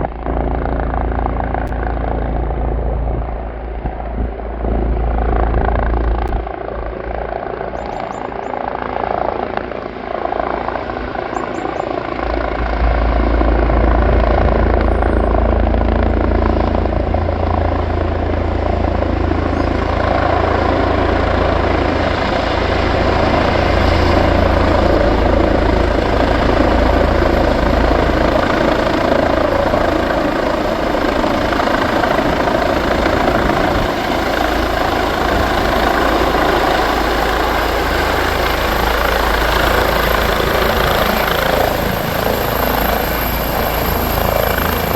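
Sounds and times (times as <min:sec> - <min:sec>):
helicopter rotor and turbine: 0:00.0 - 0:44.9
high turbine whine: 0:09.5 - 0:44.9.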